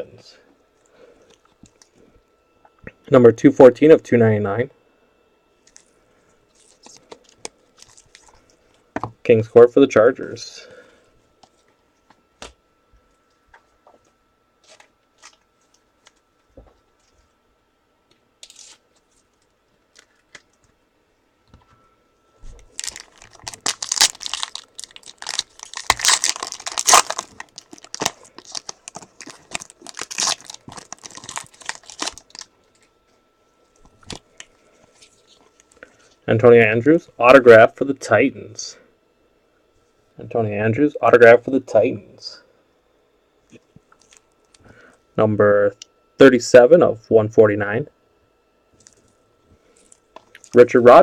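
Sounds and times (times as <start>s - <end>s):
wrapper tearing and crinkling: 6.5s - 8.4s, 18.4s - 19.2s, 22.6s - 32.9s.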